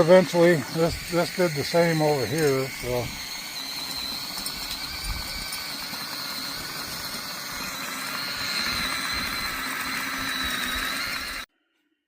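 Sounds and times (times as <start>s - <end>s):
garden tiller engine running: 0.0s - 11.5s.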